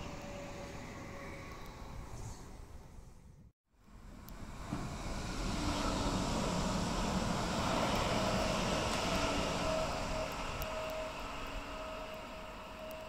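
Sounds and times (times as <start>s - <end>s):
train passing: 0.0s - 3.2s, 3.9s - 13.0s
faint whining tones: 7.7s - 13.0s.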